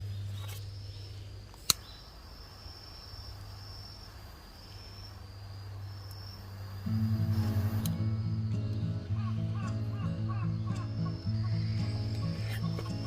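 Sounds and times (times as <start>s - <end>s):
crickets trilling: 0.0s - 13.0s
sharp click: 1.6s - 1.9s
low hum: 5.5s - 13.0s.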